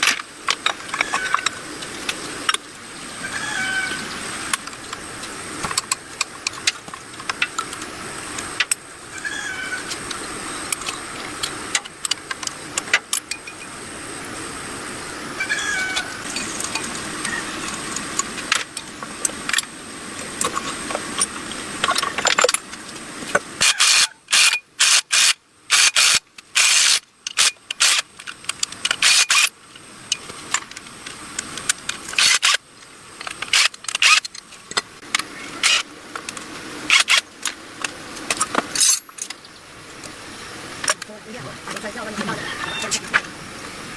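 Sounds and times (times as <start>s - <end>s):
tools clinking on engine parts: 38.3s - 39.4s.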